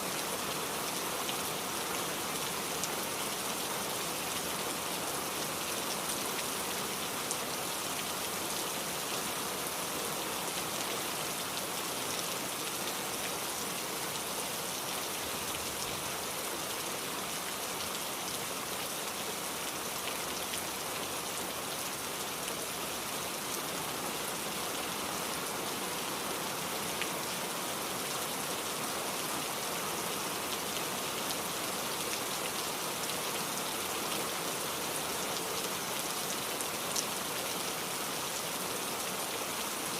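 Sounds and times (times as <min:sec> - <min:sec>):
rain falling on a surface: 0:00.0 - 0:39.9.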